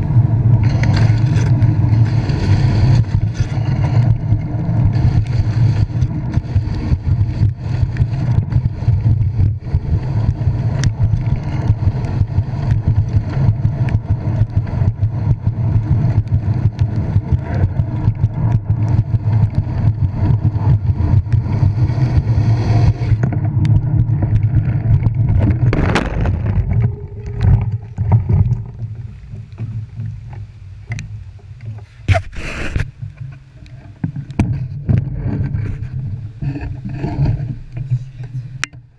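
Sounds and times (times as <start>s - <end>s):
camera handling noise: 32.1s - 33.0s.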